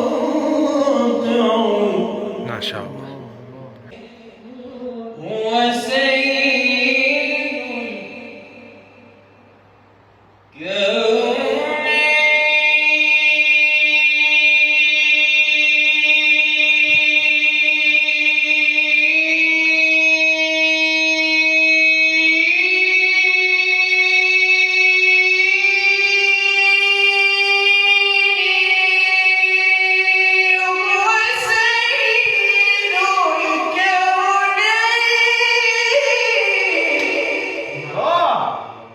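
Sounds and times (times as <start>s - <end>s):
person singing devotional chant: 0.0s - 9.2s, 10.6s - 38.9s.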